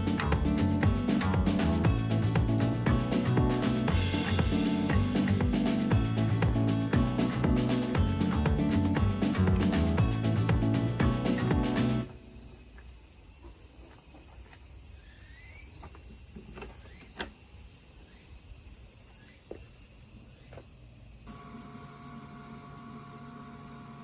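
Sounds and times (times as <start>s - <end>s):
steady hum: 0.0s - 12.7s
insects chirping chorus: 0.0s - 24.0s.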